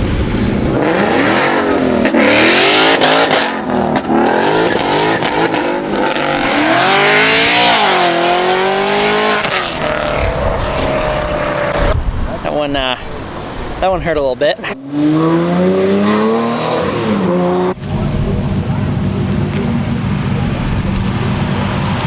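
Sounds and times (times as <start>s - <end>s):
car engine revving past: 0.1s - 12.0s.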